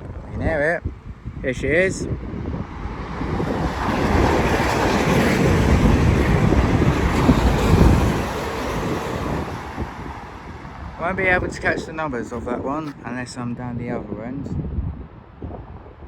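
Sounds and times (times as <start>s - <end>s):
wind buffeting microphone: 0.0s - 16.0s
high-speed train passing: 2.0s - 14.2s.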